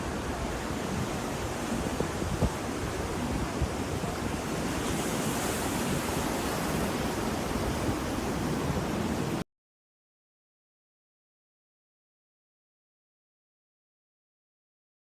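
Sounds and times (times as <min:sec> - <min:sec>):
ocean surf washing: 0:00.0 - 0:09.4.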